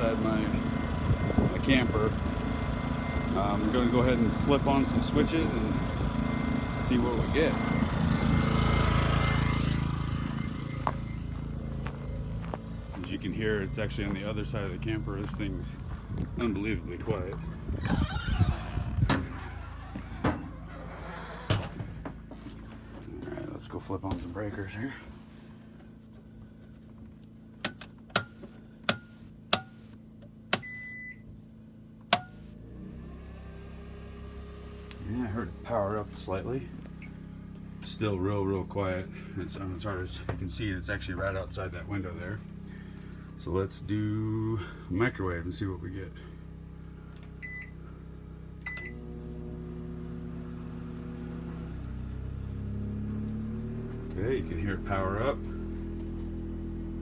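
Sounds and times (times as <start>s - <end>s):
microwave running hum: 0.0s - 20.6s, 46.2s - 52.4s
generator humming: 0.0s - 57.0s
short electronic beep: 9.1s - 12.3s
circuit breakers clicking: 27.6s - 29.8s
microwave keypad beeping: 30.6s - 31.2s.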